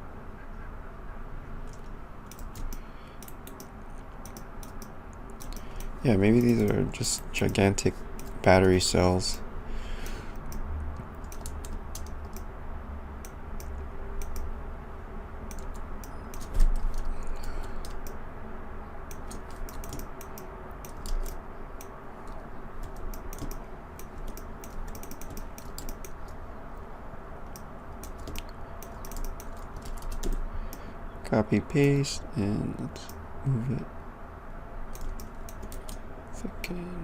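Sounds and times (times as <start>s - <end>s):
computer keyboard keys clicking: 1.6s - 8.4s, 10.0s - 12.5s, 13.2s - 14.5s, 15.5s - 18.2s, 19.1s - 26.4s, 27.5s - 30.8s, 34.9s - 36.0s.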